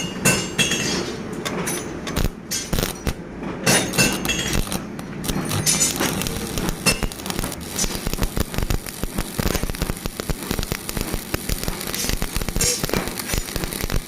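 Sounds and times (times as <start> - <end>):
metal clinks and knocks: 0.0 - 7.1.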